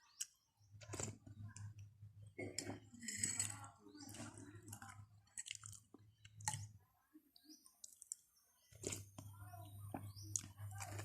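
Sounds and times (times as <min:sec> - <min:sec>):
person chewing noodles: 0:04.1 - 0:06.6.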